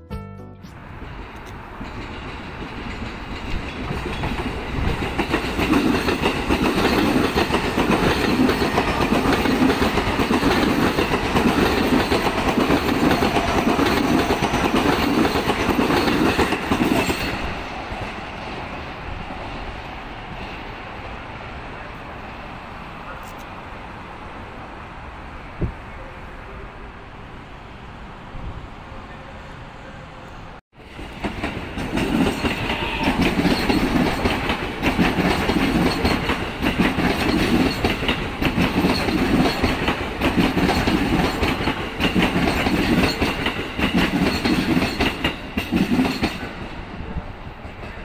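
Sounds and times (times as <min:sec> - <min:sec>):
train wheels rumbling and clicking: 0:01.0 - 0:21.1, 0:30.9 - 0:48.0.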